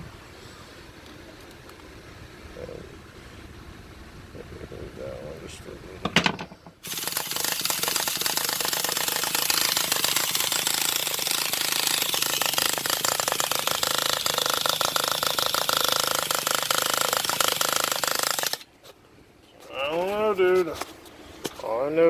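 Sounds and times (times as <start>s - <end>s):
engine starter rattling: 6.0s - 18.7s.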